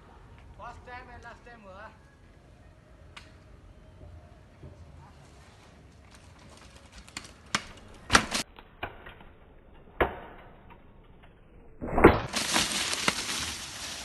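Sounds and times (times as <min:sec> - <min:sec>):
mountain bike clattering on dirt: 0:06.0 - 0:11.5, 0:12.1 - 0:14.0.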